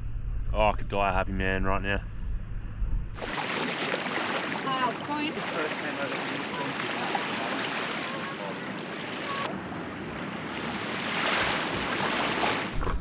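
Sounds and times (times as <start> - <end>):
ocean waves washing ashore: 3.2 - 13.0.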